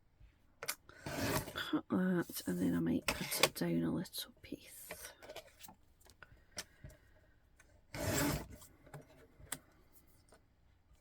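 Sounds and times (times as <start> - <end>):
paper and card being cut: 8.0 - 8.6.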